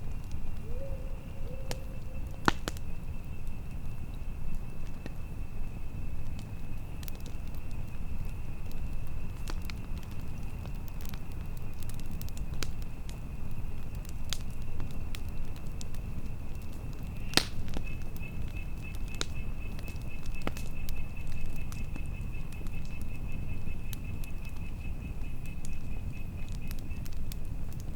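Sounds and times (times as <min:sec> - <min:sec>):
campfire crackling and popping: 0:00.0 - 0:00.7, 0:01.4 - 0:27.9
low rumble of wind: 0:00.0 - 0:27.9.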